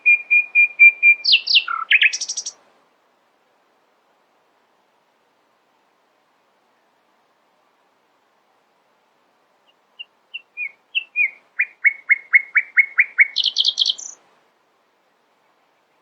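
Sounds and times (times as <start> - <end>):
songbird singing: 0.0 - 2.6, 9.6 - 14.3, 15.3 - 16.0.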